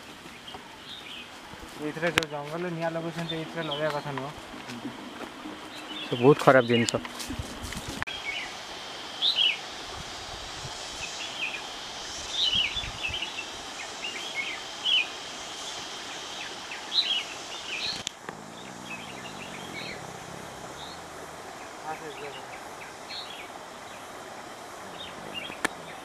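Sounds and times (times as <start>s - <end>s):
background hiss: 0.0s - 26.0s
bird chirping: 12.3s - 26.0s.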